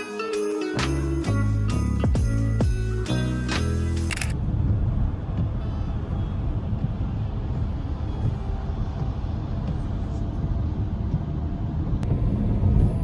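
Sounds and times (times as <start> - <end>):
low rumble: 1.1 - 13.0
sharp click: 4.1 - 4.4.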